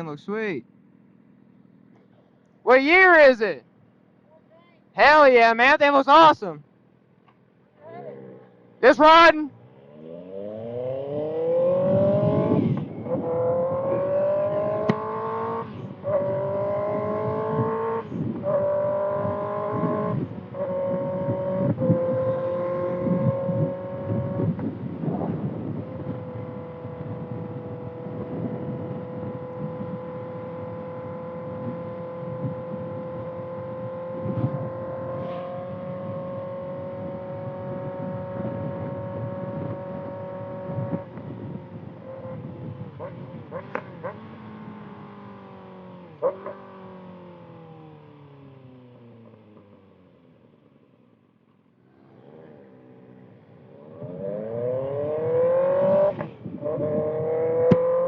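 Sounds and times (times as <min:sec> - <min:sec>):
motorcycle accelerating through gears: 0:07.9 - 0:08.9, 0:09.5 - 0:58.0
wind rush: 0:11.1 - 0:30.2, 0:37.4 - 0:43.4.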